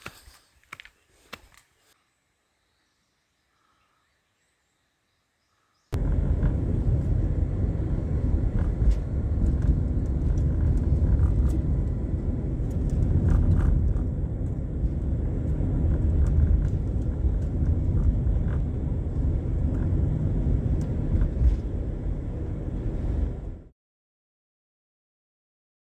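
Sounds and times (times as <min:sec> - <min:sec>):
vehicle engine rumble: 0:05.9 - 0:23.7.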